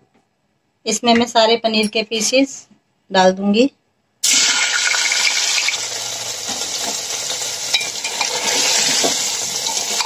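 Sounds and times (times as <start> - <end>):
cheese sizzling in hot oil: 4.2 - 10.0.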